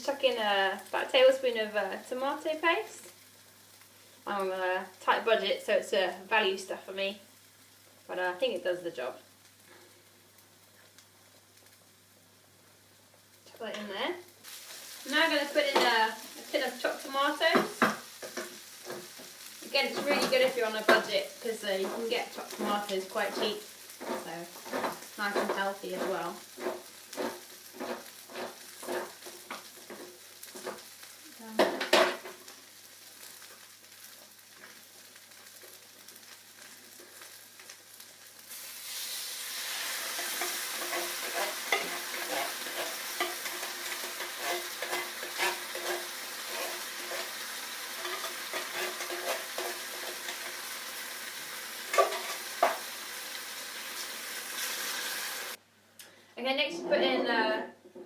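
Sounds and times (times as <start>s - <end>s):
sauce sizzling and crackling: 0.0s - 55.6s
scraping and knocking in pan: 21.8s - 30.9s, 40.1s - 47.4s, 48.0s - 50.6s, 51.9s - 52.9s.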